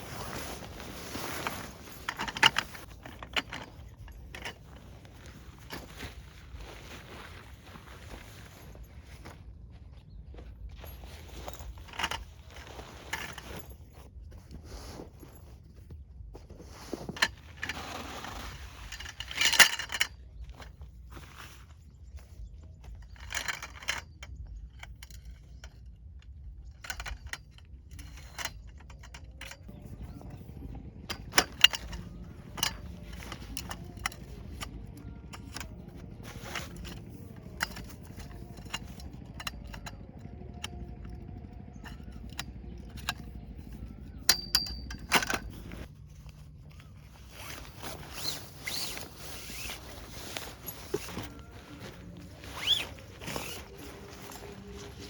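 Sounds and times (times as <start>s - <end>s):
objects clicking and knocking: 0.0s - 6.3s, 22.2s - 55.0s
low steady rumble: 0.0s - 55.0s.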